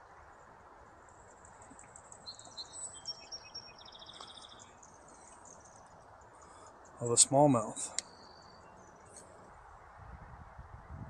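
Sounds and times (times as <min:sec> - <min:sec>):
outdoor background hiss: 0:00.0 - 0:11.0
faint high-pitched bird chirps: 0:01.4 - 0:09.2.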